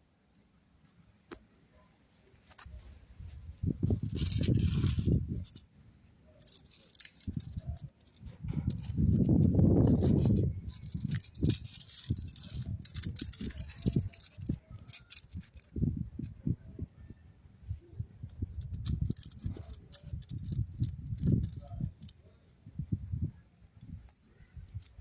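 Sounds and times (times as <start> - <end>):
clicks and light rattles: 2.4 - 5.7, 6.4 - 16.5, 17.7 - 22.3, 23.8 - 25.0.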